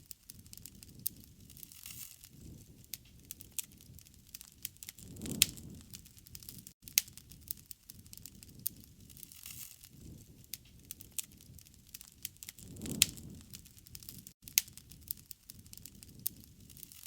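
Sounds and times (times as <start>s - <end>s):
campfire pops and snaps: 0.0s - 17.0s
soft rumble of flames: 0.0s - 17.0s.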